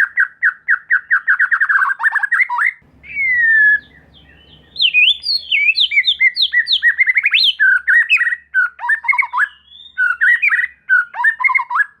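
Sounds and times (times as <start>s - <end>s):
bird singing whistled notes: 0.0s - 12.0s.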